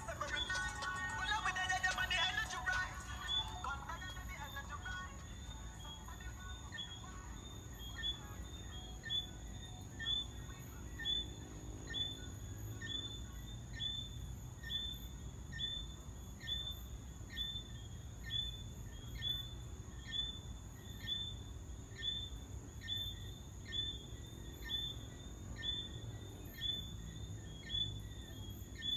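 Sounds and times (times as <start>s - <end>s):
high-pitched insect drone: 0.0s - 15.9s
tree frogs chirping: 0.0s - 28.9s.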